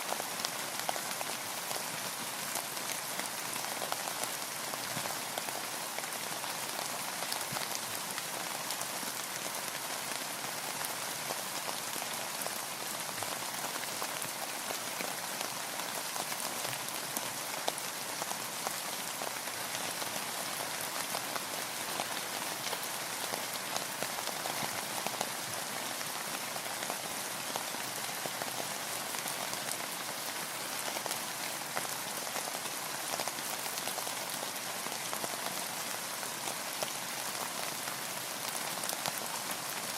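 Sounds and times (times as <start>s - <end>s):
rain falling on a boat: 0.0s - 39.9s.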